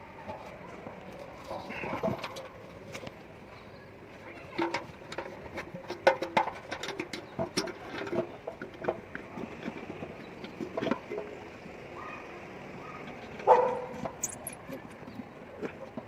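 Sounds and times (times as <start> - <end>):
metal parts clicking and knocking: 13.9 - 15.0.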